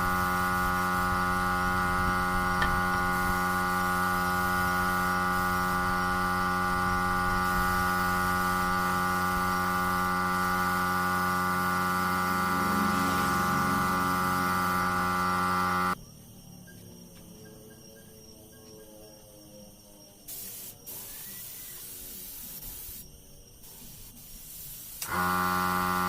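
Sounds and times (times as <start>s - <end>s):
steady electric hum: 0.0s - 16.0s.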